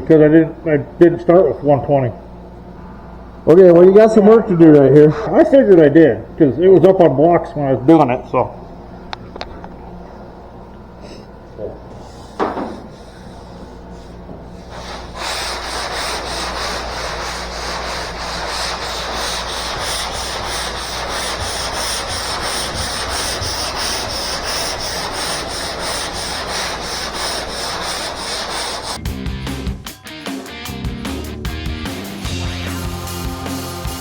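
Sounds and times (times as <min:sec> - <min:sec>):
sandpaper rasping on body filler: 0:14.6 - 0:29.0
rock music: 0:29.0 - 0:34.0.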